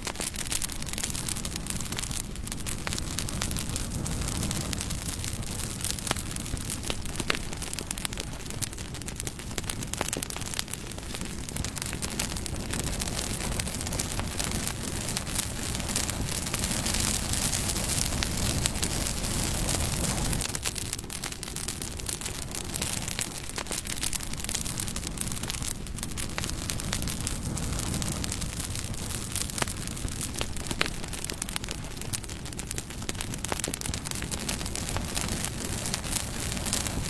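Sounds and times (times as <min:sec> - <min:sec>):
burning wood crackling and popping: 0:00.0 - 0:37.0
rushing hiss of flames: 0:00.0 - 0:37.0.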